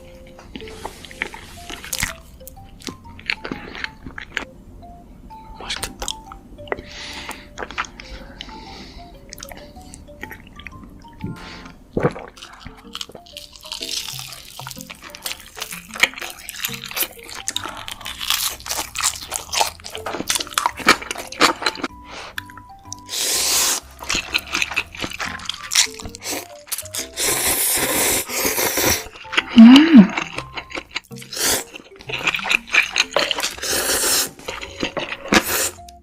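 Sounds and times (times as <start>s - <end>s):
soft background music: 0.0s - 36.0s
crunching and chewing: 0.5s - 4.5s, 11.9s - 27.5s, 28.2s - 36.0s.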